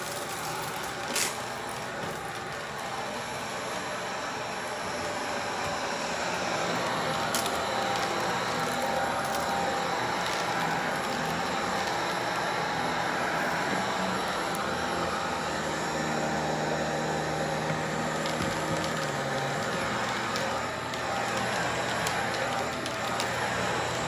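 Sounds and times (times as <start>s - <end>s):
debris clicking in vacuum: 0.0s - 2.8s, 6.8s - 12.5s, 17.6s - 24.0s
vacuum cleaner running: 0.0s - 24.0s.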